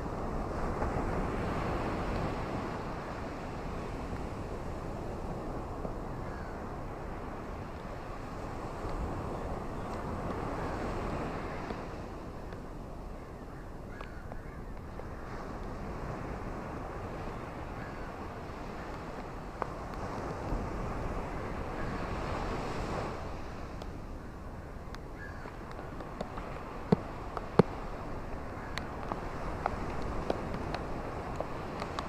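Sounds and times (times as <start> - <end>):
ocean surf washing onto beach: 0.0 - 13.2, 14.8 - 32.0
faint high ticks: 28.7 - 32.0.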